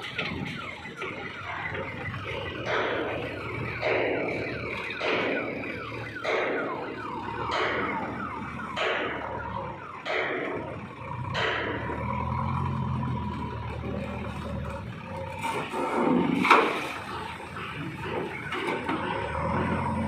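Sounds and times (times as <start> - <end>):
heavy vehicle engine humming: 0.0 - 20.0.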